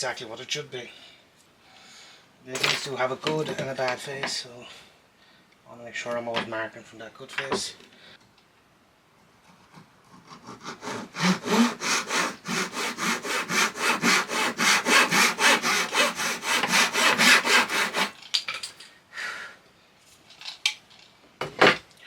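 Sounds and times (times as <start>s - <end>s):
hand saw cutting plywood: 10.1s - 18.2s.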